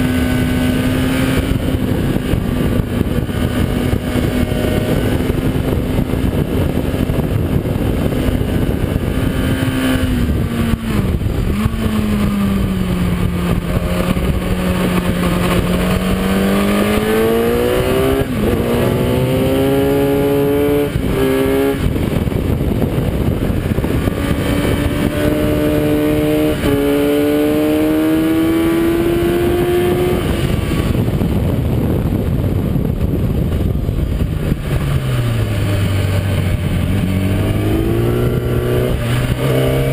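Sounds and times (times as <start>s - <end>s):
motorcycle engine at speed: 0.0s - 39.9s
wind rush: 0.0s - 39.9s.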